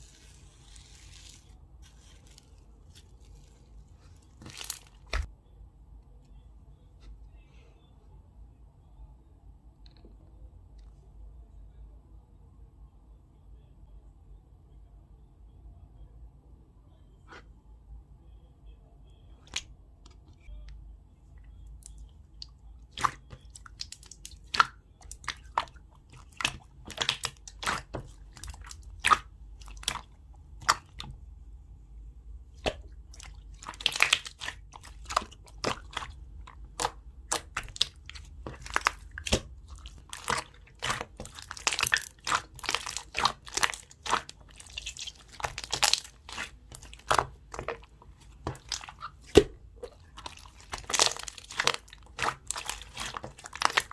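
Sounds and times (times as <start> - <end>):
low background hum: 0.0 - 53.9
slime popping and crackling: 4.4 - 5.3, 22.9 - 31.0, 32.6 - 53.9.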